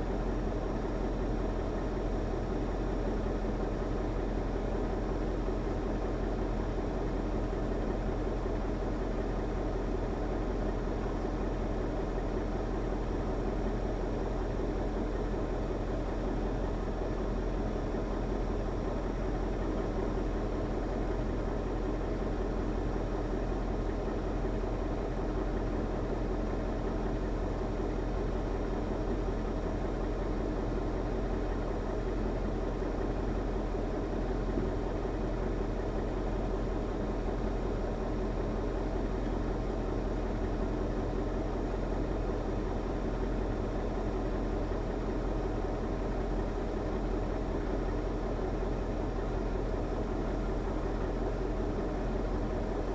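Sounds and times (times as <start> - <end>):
diesel truck engine running: 0.0 - 52.8.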